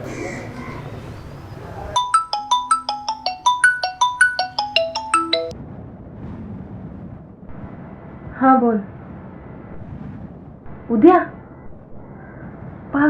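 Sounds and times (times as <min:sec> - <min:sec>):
mobile phone ringtone: 0:02.0 - 0:05.5.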